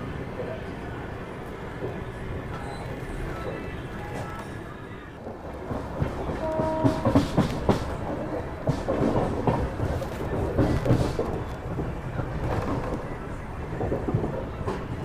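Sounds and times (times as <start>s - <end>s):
train wheels clattering: 5.2s - 15.0s.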